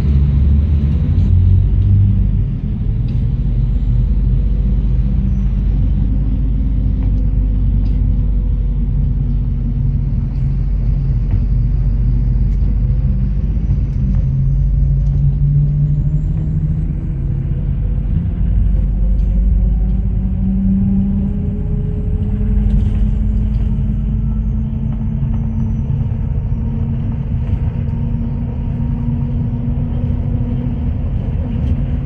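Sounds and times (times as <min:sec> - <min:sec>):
bus engine and road rumble: 0:00.0 - 0:32.0.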